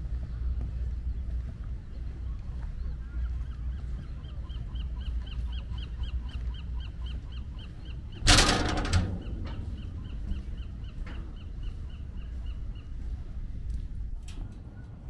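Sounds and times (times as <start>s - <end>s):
low wind rumble: 0.0s - 15.0s.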